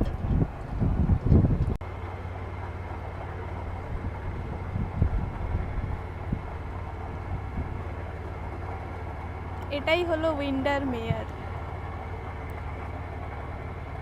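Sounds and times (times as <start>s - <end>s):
wind on microphone: 0.0s - 1.8s, 3.8s - 7.9s
motorboat engine humming: 0.0s - 14.0s.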